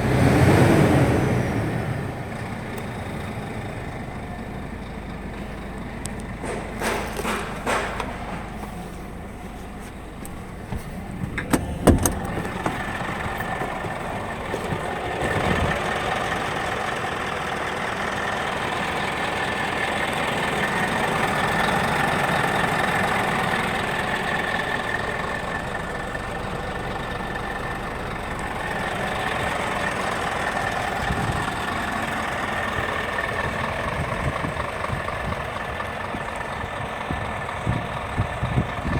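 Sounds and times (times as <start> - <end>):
truck diesel engine idling: 0.0 - 38.9.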